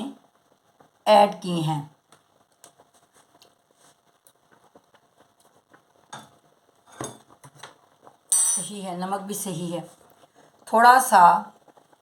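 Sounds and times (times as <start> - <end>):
faint clicks and ticks: 2.0 - 8.3, 11.5 - 12.0.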